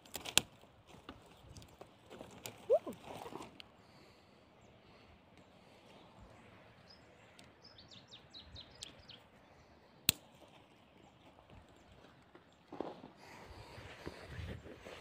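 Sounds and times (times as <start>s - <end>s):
small bird chirping: 2.6s - 3.4s, 6.8s - 9.4s.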